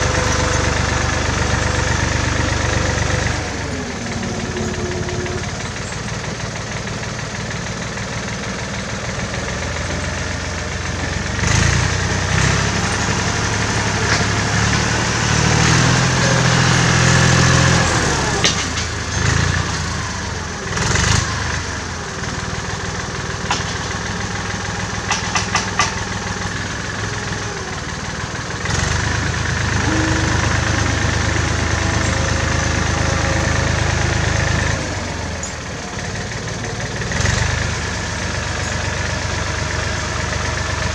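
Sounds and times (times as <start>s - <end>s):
tractor engine running: 0.0s - 40.9s
sharp clicks and clanks: 25.0s - 26.5s.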